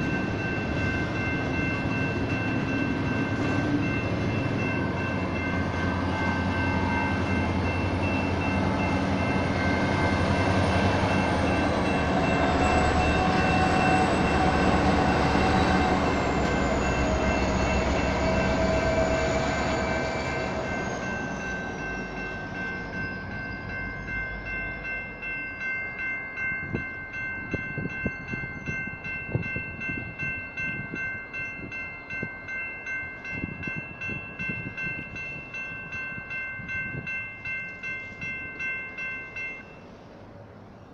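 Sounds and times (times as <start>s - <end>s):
electronic crossing bells ringing: 0.0s - 39.8s
diesel locomotives rumbling: 0.0s - 40.9s.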